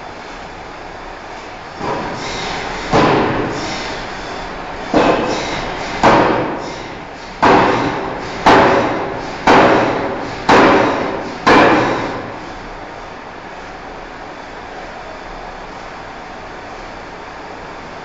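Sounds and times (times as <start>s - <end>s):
forging hammer striking steel: 1.8s - 3.9s, 4.9s - 12.4s.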